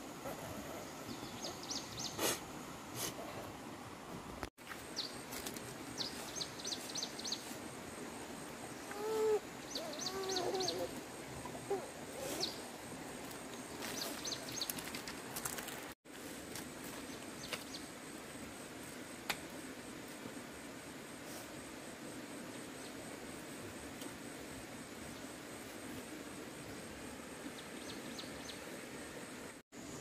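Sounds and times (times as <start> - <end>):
steady background hiss: 0.0 - 30.0
small birds chirping: 8.8 - 12.8
low wavering bird call: 8.9 - 11.0.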